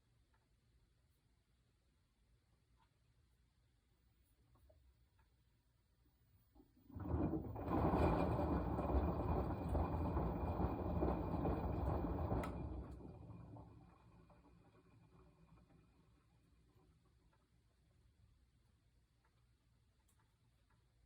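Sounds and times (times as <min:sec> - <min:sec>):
washing machine drum turning: 0:06.8 - 0:17.5.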